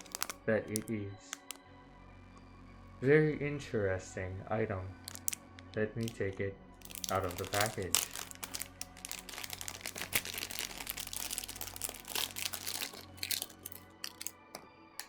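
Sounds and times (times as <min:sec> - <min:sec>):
packaging crinkling and tearing: 0:00.0 - 0:01.6, 0:05.0 - 0:05.4, 0:06.8 - 0:14.4.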